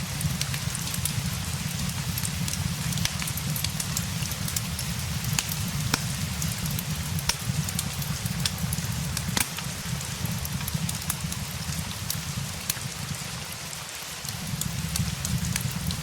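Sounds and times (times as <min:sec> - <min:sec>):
steady rain: 0:00.0 - 0:16.0
wood fire crackling: 0:00.0 - 0:16.0.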